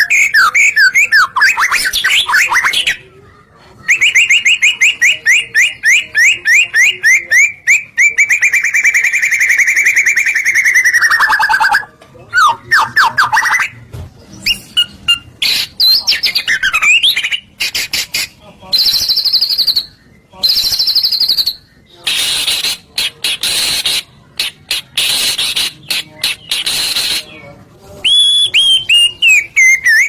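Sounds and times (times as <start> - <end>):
bird singing whistled notes: 18.8 - 22.8, 26.4 - 30.0.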